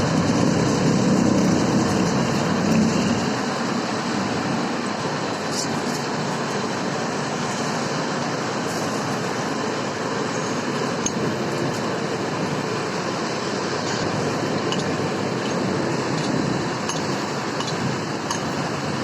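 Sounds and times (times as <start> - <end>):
machinery running: 0.0 - 19.0.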